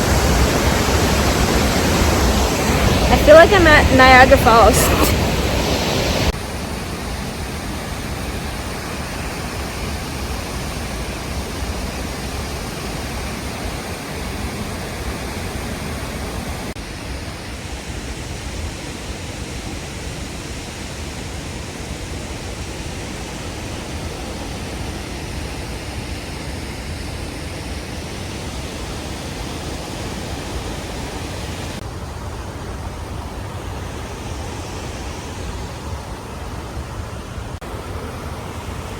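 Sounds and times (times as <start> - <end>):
waterfall rushing: 0.0 - 16.8, 28.6 - 38.9.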